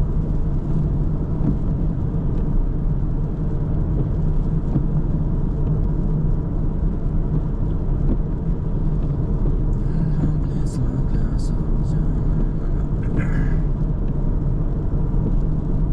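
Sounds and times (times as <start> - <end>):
car driving on road: 0.0 - 15.9.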